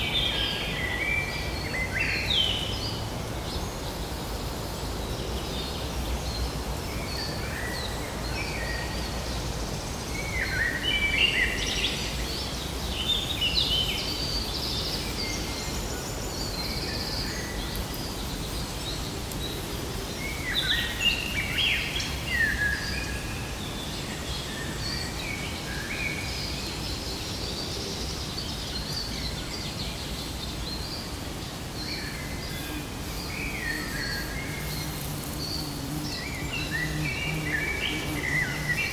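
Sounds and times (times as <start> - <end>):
birds singing and chirping: 10.2 - 38.9.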